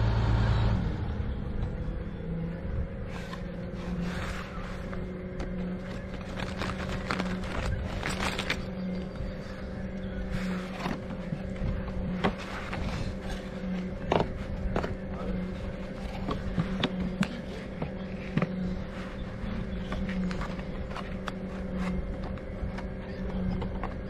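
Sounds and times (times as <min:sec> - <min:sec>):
bicycle rolling on road: 0:01.2 - 0:24.0
bicycle clicks and rattles: 0:05.8 - 0:09.1.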